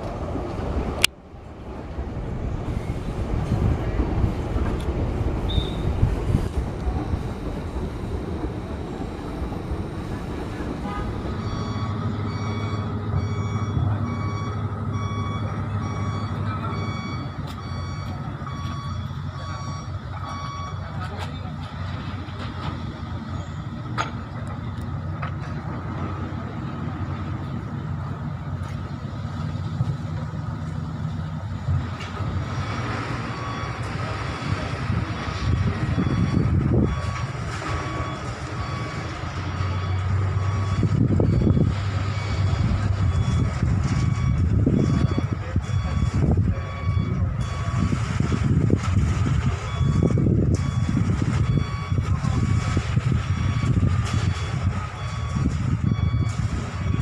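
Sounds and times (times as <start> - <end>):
truck engine running: 0.0 - 57.0
reversing alarm beeps: 5.5 - 6.0, 11.2 - 21.3, 32.5 - 48.5, 49.5 - 57.0.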